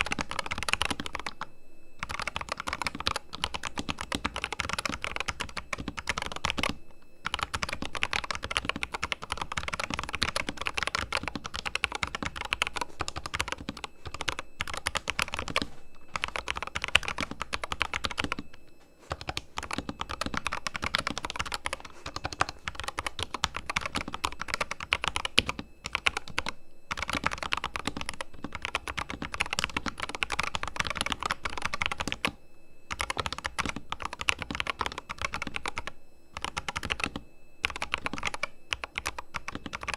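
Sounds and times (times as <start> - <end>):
mechanical keyboard typing: 0.0 - 1.4, 2.0 - 18.4, 19.1 - 39.9.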